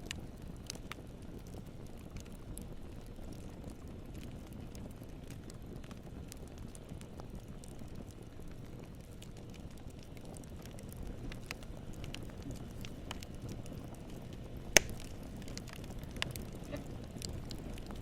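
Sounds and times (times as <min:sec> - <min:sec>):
campfire crackling: 0:00.0 - 0:18.0
loud sharp pop: 0:14.8 - 0:15.0.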